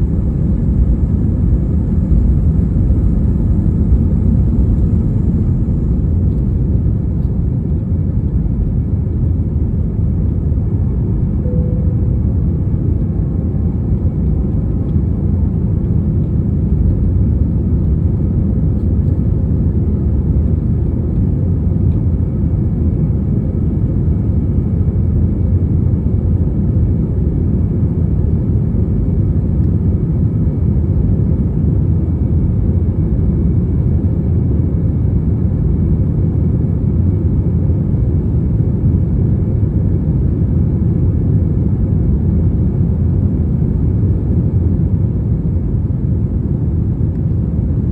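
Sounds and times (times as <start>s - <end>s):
faint high hum: 0.0s - 26.1s
jet engines and rushing air rumble: 0.0s - 47.9s.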